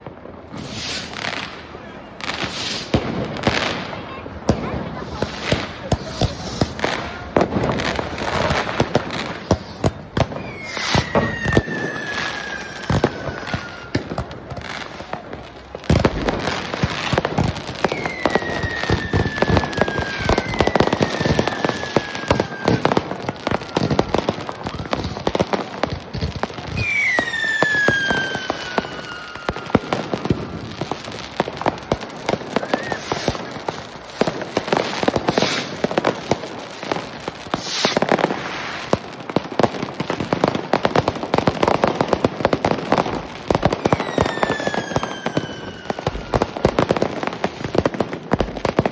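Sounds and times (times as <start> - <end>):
fireworks bangs and crackling: 0.0 - 48.9
whistles falling in pitch: 10.4 - 14.0, 26.8 - 29.9.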